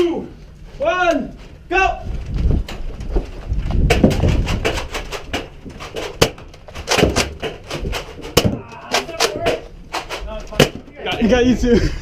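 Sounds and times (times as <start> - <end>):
low rumble of movement: 0.3 - 12.0
sharp clicks and knocks: 2.2 - 11.2.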